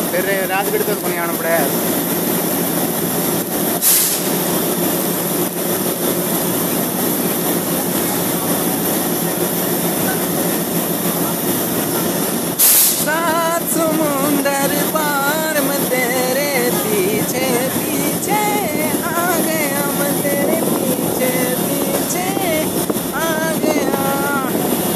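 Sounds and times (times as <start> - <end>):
train wheels rumbling on rail: 0.0 - 24.9
short hiss bursts: 3.8 - 5.2, 12.6 - 24.9
music with singing: 12.9 - 24.9.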